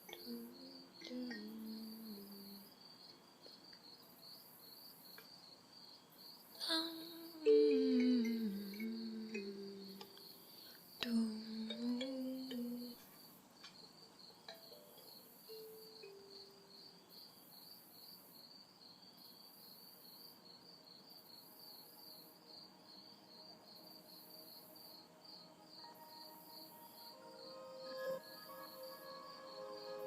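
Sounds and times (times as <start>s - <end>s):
soft hummed notes: 0.0s - 2.8s, 6.6s - 13.1s
high insect hiss: 0.0s - 30.0s
night insects chirping: 0.0s - 30.0s.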